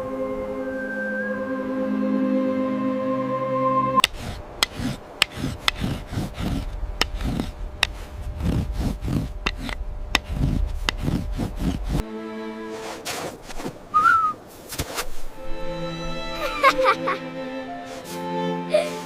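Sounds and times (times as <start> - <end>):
held music chord: 0.0 - 4.1, 15.4 - 19.0
low steady rumble: 4.0 - 12.1.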